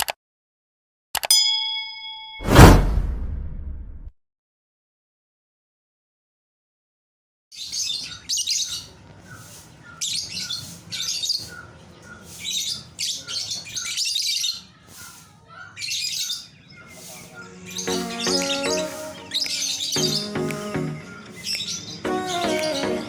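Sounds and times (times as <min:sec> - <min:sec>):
small birds chirping: 0:07.5 - 0:23.0
background music: 0:17.5 - 0:23.0.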